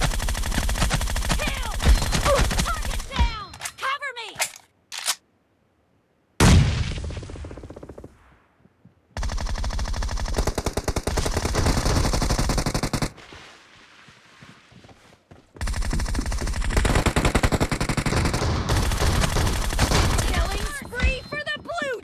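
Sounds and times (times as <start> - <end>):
video game automatic gunfire: 0.0 - 3.2, 9.2 - 13.1, 15.6 - 21.6.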